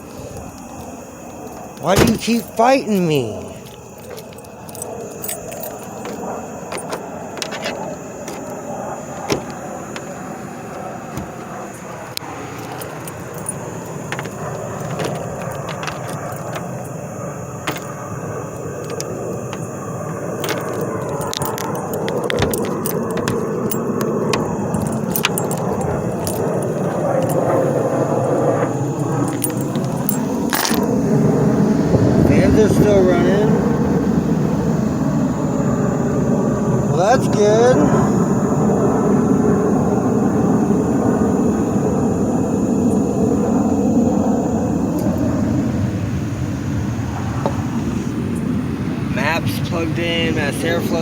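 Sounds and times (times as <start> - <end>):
keys jangling: 0.0 - 31.5, 44.8 - 45.6
vehicle rumble: 0.0 - 36.1.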